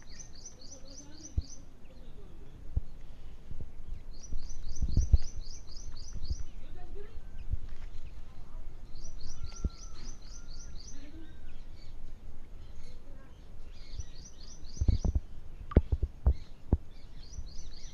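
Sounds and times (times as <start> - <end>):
bird chirping: 0.0 - 17.9.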